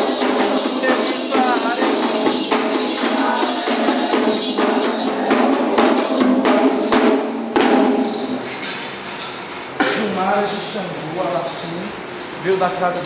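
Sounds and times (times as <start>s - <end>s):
drums playing: 0.0s - 8.9s
jingling percussion: 0.0s - 9.4s.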